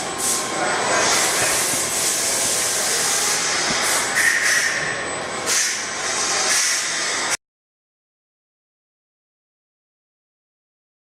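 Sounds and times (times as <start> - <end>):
brief machine whine: 0.0 - 7.4
lathe coolant spraying hiss: 0.0 - 7.4.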